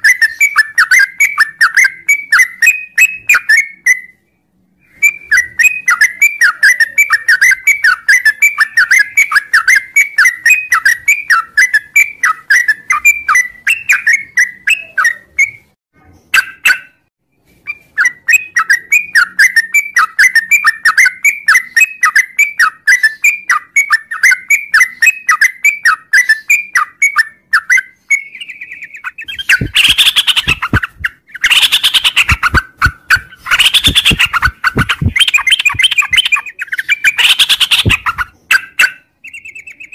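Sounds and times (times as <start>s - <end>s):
bulbul chattering song: 4.9s - 17.0s, 17.8s - 39.9s
harsh bird call bursts: 29.2s - 38.9s.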